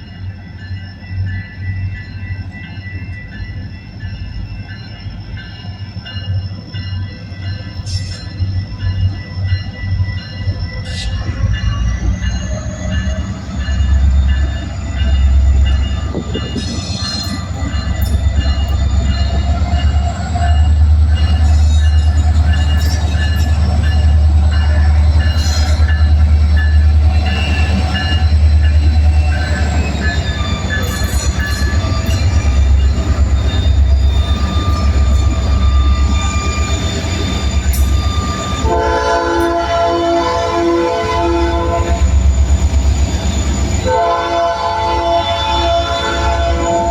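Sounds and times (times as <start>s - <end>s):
diesel locomotive rumble: 0.0s - 46.9s
train wheels clicking and squealing: 0.0s - 46.9s.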